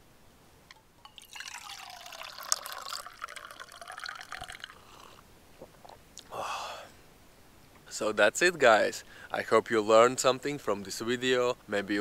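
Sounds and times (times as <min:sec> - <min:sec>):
liquid pouring and splashing: 0:01.0 - 0:05.0.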